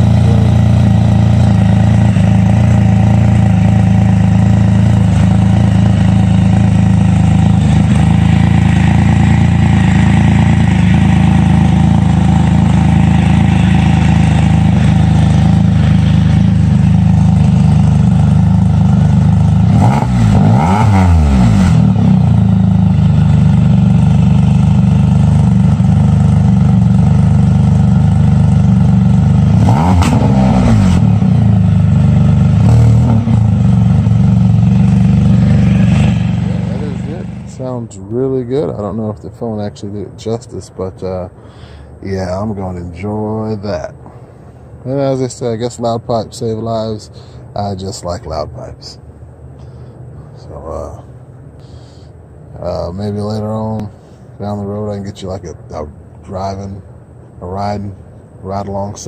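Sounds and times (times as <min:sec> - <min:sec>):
three-cylinder engine idling: 0:00.0 - 0:20.5, 0:21.8 - 0:29.6, 0:31.0 - 0:32.8, 0:33.4 - 0:40.4
engine revving: 0:00.0 - 0:37.8.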